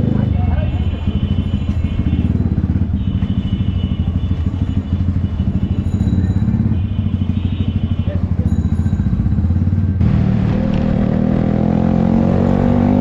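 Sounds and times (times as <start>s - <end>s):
motorcycle engine running at low revs: 0.0s - 13.0s.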